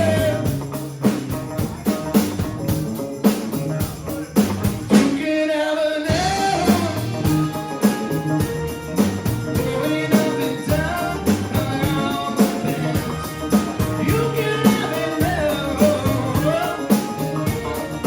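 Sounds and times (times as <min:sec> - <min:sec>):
person singing: 0:00.0 - 0:00.6, 0:04.9 - 0:18.0
rock band playing: 0:00.0 - 0:05.3, 0:06.1 - 0:18.0
drums keeping a steady beat: 0:00.0 - 0:05.4, 0:06.1 - 0:18.0.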